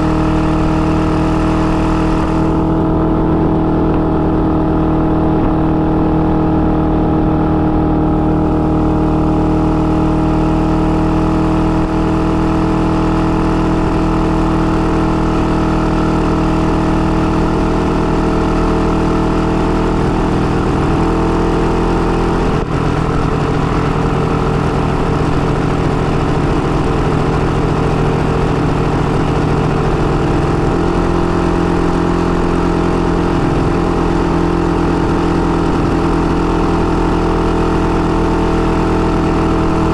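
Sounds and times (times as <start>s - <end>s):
two-stroke motorcycle engine running: 0.0s - 39.9s.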